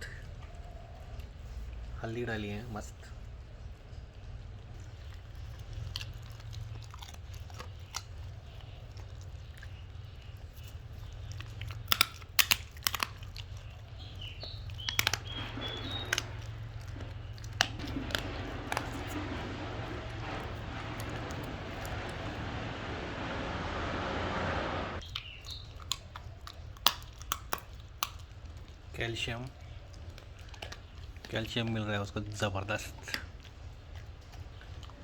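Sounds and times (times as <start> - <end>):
low constant hum: 0.0 - 25.0
dog chewing and crunching: 0.2 - 23.6, 25.0 - 35.0
steady hiss: 17.7 - 25.0.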